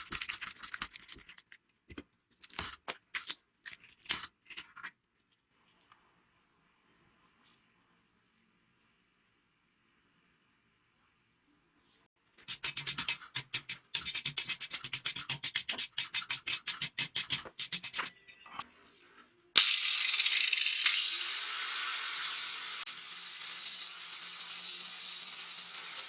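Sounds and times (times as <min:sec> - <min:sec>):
hand filing metal: 0:12.5 - 0:18.1
power tool whine: 0:19.6 - 0:26.0.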